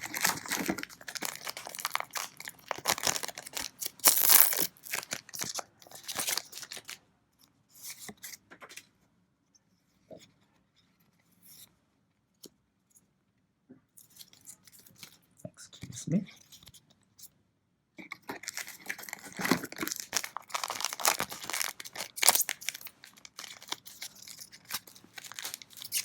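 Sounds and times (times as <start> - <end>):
foil wrapper tearing and crinkling: 0.0 - 7.0, 18.3 - 26.0.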